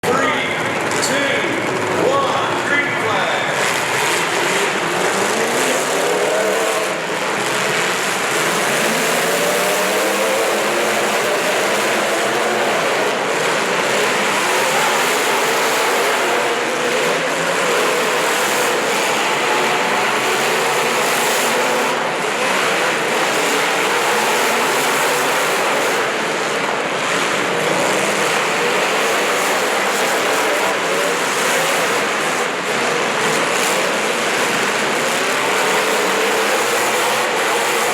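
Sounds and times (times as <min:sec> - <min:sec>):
racing engines revving: 0:00.0 - 0:37.9.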